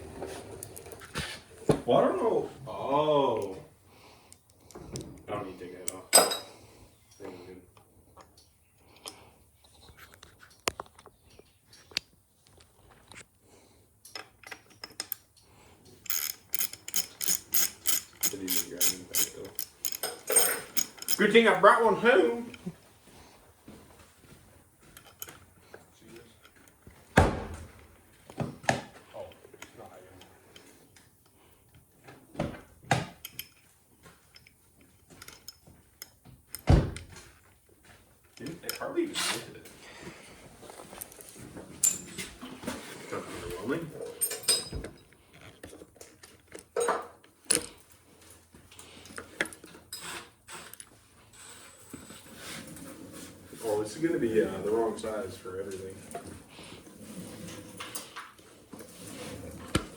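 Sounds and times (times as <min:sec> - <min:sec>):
metal tools clicking and tapping: 0:14.0 - 0:21.4, 0:33.2 - 0:33.7, 0:34.3 - 0:36.7
ratchet wrench clicks: 0:16.0 - 0:21.2.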